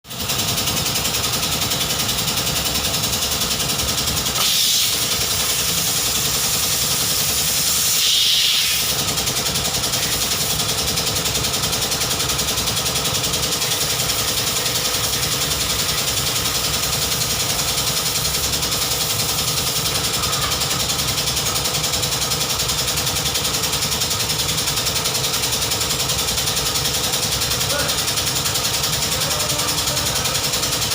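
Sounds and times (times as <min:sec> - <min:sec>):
car engine idling: 0:00.1 - 0:07.9, 0:08.9 - 0:30.9
short hisses: 0:07.4 - 0:09.0.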